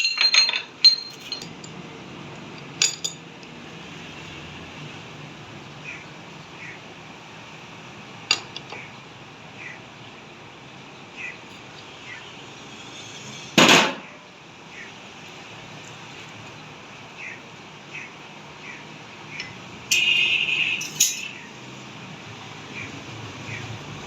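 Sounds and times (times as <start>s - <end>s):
rattling clatter: 0.0s - 1.7s.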